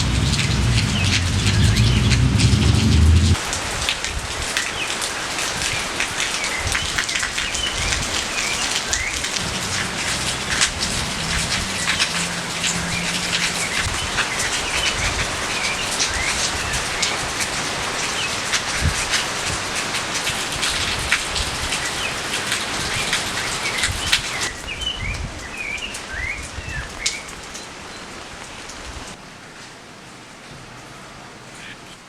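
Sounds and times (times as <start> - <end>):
deep low rumble: 0.0 - 3.4, 9.4 - 15.5
rain pattering on surfaces: 0.0 - 32.0.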